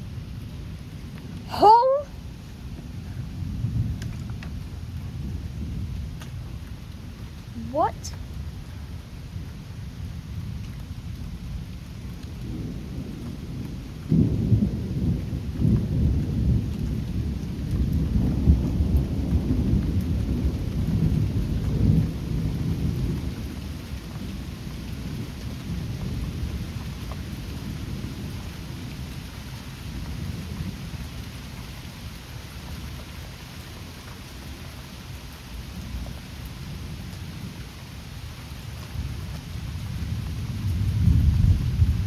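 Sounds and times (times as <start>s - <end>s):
thunder rumbling: 0.0s - 29.1s, 38.9s - 42.0s
steady rain: 0.0s - 42.0s.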